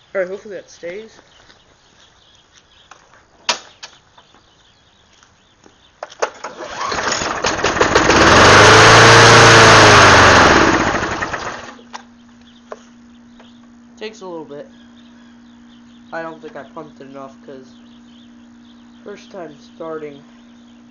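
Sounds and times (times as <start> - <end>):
mower engine starting: 6.0 - 11.8.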